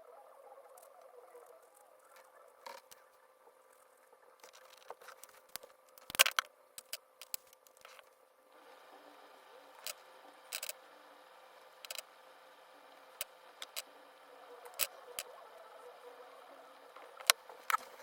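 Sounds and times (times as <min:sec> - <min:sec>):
small clicks and scrapes: 0:00.8 - 0:03.1, 0:03.7 - 0:08.2, 0:09.8 - 0:10.9, 0:11.7 - 0:12.1, 0:13.0 - 0:13.9, 0:17.0 - 0:18.0.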